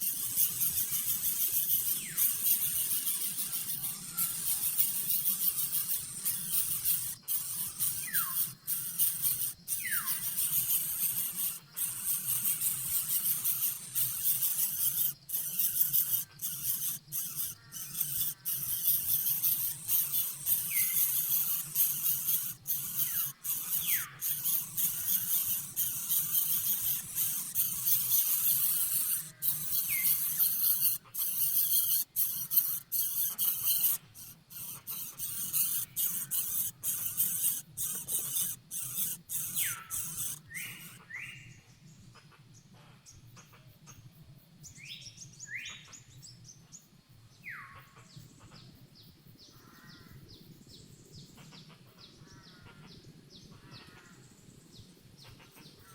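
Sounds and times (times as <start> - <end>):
bird whistles sliding downward: 0.0 - 41.0.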